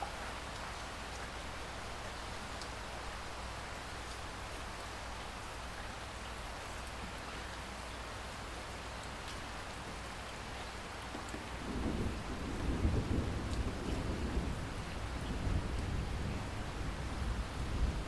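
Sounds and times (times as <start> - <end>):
distant thunder rumbling: 11.4 - 18.0.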